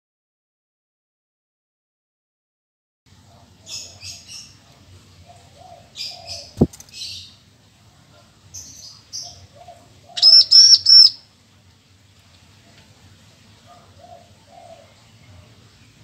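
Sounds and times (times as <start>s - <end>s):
bird chirping: 5.3s - 7.4s, 8.5s - 11.2s.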